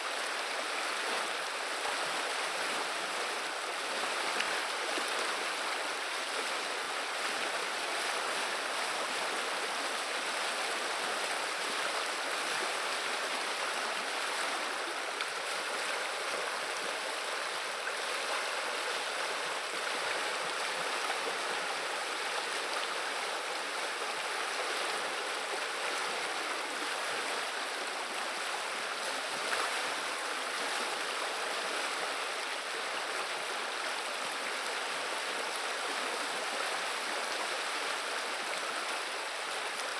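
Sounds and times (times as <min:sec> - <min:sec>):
river water babbling: 0:00.0 - 0:39.9.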